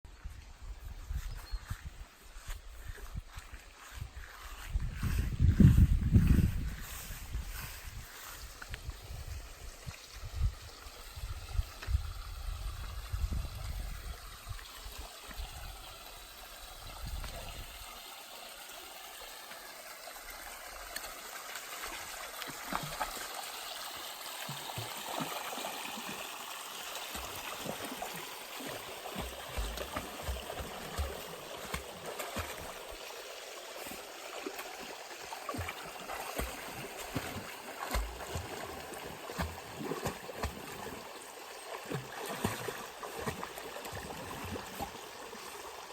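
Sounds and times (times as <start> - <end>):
stream flowing over rocks: 8.5 - 45.9
water splashes: 18.6 - 45.9.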